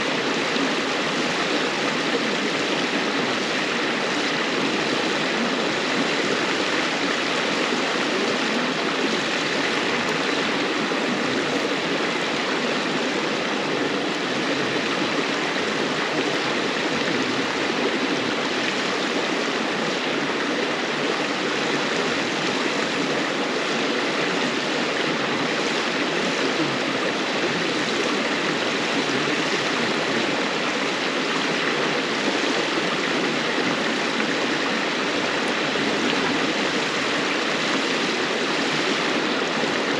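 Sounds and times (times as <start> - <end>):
river water babbling over stones: 0.0 - 39.9.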